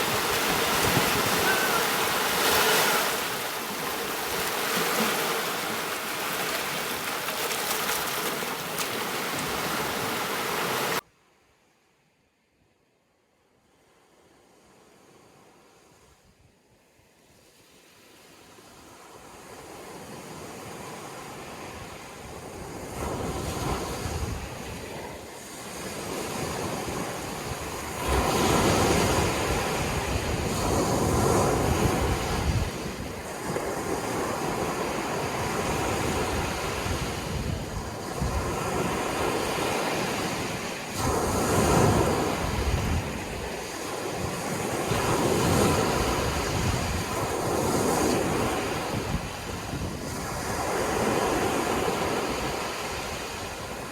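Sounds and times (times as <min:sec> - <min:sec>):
surf breaking on shore: 0:00.0 - 0:11.0.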